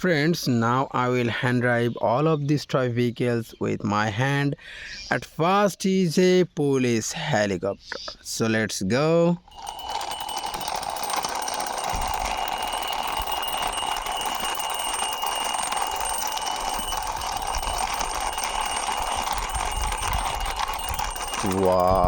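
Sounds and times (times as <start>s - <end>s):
toy helicopter buzzing whir: 9.5s - 22.0s.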